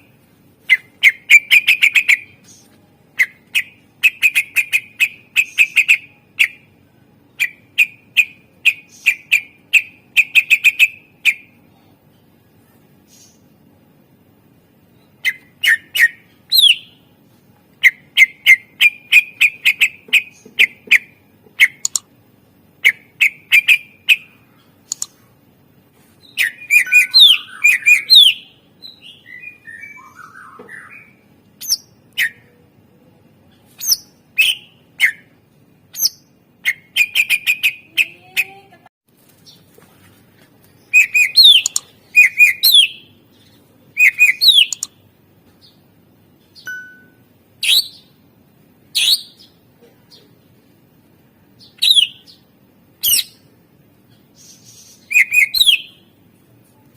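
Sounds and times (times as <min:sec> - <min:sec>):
bird singing sharp chirps: 0:44.0 - 0:44.9.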